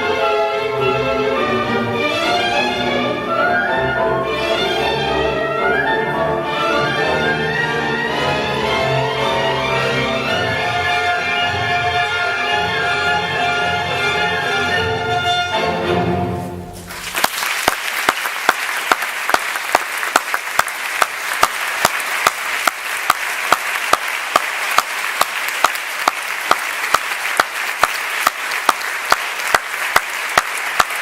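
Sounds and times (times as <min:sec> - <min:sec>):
audience applauding: 0:16.8 - 0:31.0
sharp evenly spaced claps: 0:16.9 - 0:31.0.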